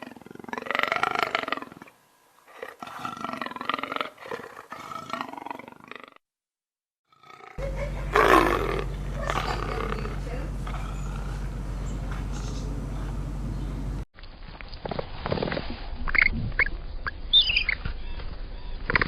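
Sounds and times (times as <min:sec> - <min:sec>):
big cat roaring: 0:07.1 - 0:13.2
steady low hum: 0:07.6 - 0:14.1.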